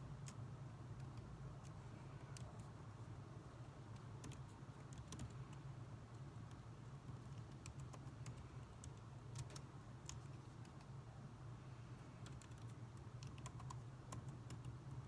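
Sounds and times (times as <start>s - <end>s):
low background noise: 0.0s - 15.0s
keyboard typing: 4.0s - 5.6s, 6.5s - 10.9s, 12.2s - 15.0s.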